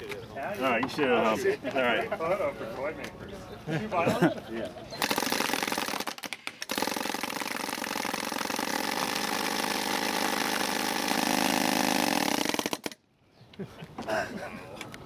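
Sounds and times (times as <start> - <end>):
paintball gun firing rapidly: 5.0 - 13.0.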